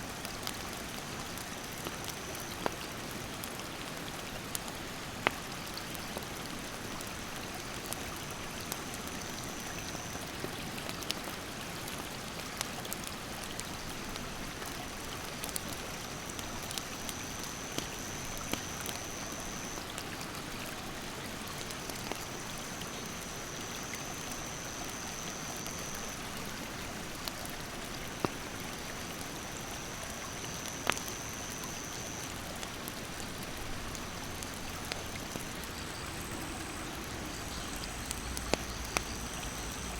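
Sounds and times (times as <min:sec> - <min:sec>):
campfire crackling: 0:00.2 - 0:11.4, 0:12.3 - 0:19.7, 0:21.5 - 0:39.9
mountain stream rushing: 0:25.8 - 0:39.9
high insect buzz: 0:35.4 - 0:39.9.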